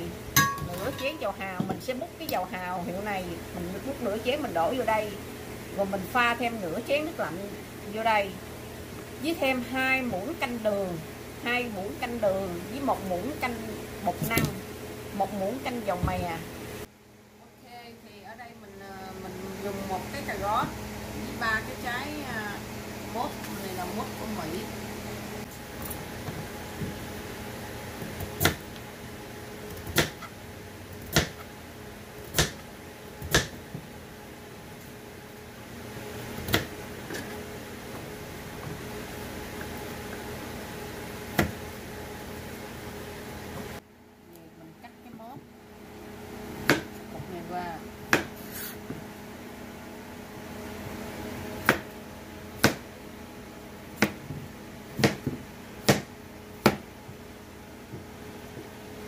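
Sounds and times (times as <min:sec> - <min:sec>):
faint steady hum: 0:00.0 - 0:59.0
knife chopping on cutting board: 0:29.8 - 0:30.3, 0:31.0 - 0:31.5, 0:32.3 - 0:32.6, 0:33.2 - 0:33.6, 0:46.6 - 0:46.9, 0:48.1 - 0:48.9, 0:51.6 - 0:51.9, 0:52.6 - 0:52.8, 0:55.0 - 0:56.9.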